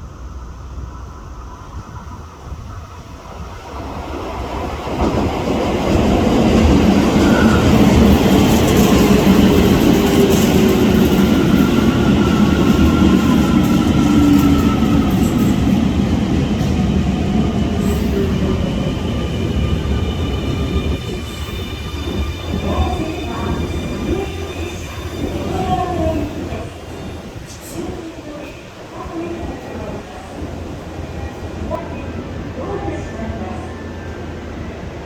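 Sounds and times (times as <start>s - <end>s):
wheels rumbling on rail: 0.0s - 35.0s.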